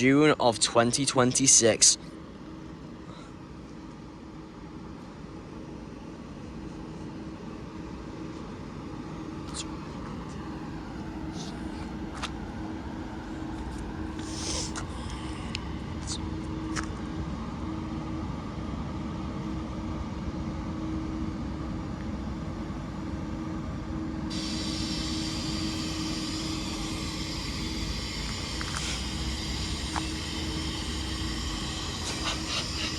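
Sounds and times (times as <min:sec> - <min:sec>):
train electric hum: 0:00.0 - 0:32.9
hiss: 0:14.2 - 0:15.4, 0:24.3 - 0:32.9.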